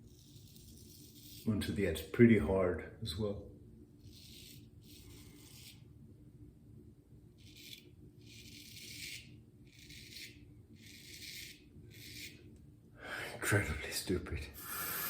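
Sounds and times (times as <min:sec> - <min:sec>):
razor scraping stubble: 0:00.0 - 0:02.1, 0:04.0 - 0:05.9, 0:07.4 - 0:12.5.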